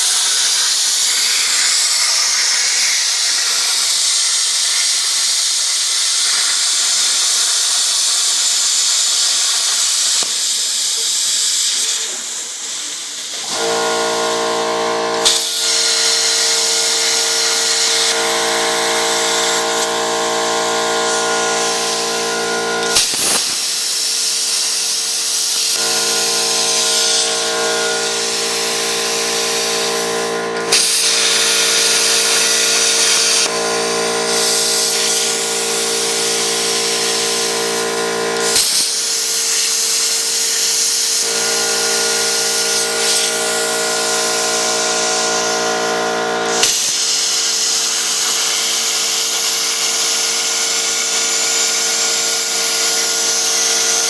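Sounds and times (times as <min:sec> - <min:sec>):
plasma cutter arc hissing: 0:00.0 - 0:54.0
machine whine: 0:11.9 - 0:54.0.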